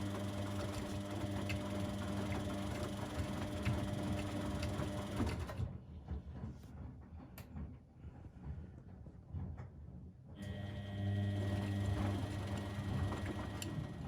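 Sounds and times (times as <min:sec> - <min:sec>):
washing machine running: 0:00.0 - 0:06.4, 0:10.3 - 0:14.0.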